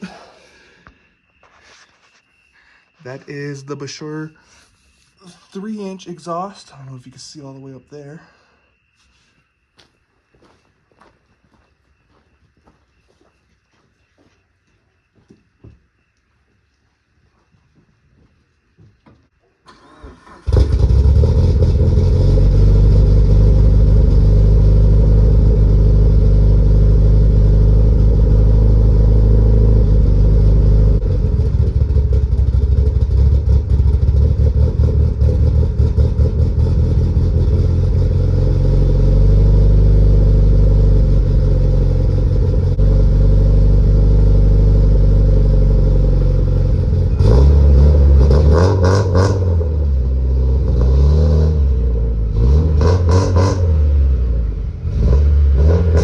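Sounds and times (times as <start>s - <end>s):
car engine starting and running: 19.7s - 56.0s.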